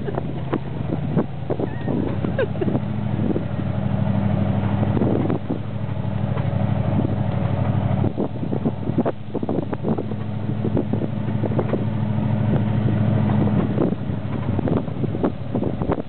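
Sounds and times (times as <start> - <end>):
car engine running: 0.0 - 16.0
knocks and rattles: 9.5 - 16.0.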